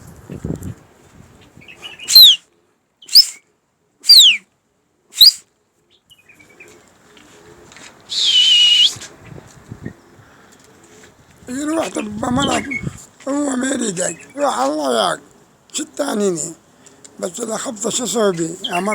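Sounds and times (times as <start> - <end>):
person whistling sharply: 2.1 - 2.4, 3.1 - 3.4, 4.1 - 4.4, 5.2 - 5.4, 8.1 - 9.0.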